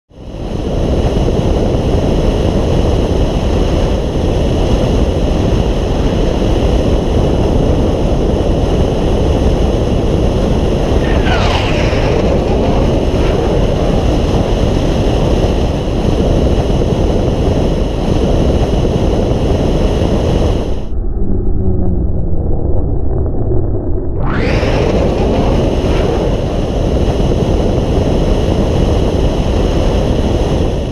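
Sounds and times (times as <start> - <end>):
car road and wind noise: 0.2 - 30.9
short falling sweep: 10.8 - 16.0, 20.8 - 27.0.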